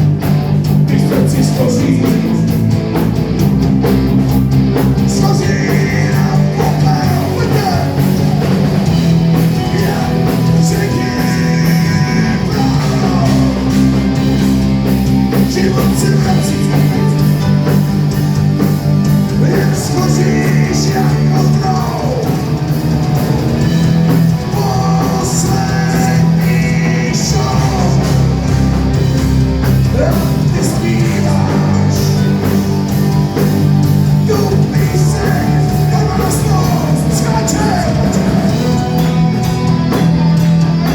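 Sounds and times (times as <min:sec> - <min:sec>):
bass guitar: 0:00.0 - 0:40.9
drums steady beat: 0:00.0 - 0:40.9
electric guitars: 0:00.0 - 0:40.9
person singing: 0:00.9 - 0:02.8, 0:05.0 - 0:08.6, 0:09.2 - 0:14.3, 0:15.3 - 0:17.8, 0:19.3 - 0:22.7, 0:24.2 - 0:28.9, 0:29.7 - 0:32.7, 0:34.1 - 0:40.0.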